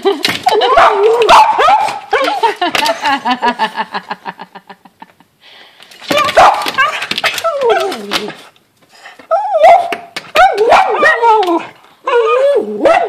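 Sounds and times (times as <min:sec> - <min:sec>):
dog whining and yipping: 0:09.3 - 0:13.0.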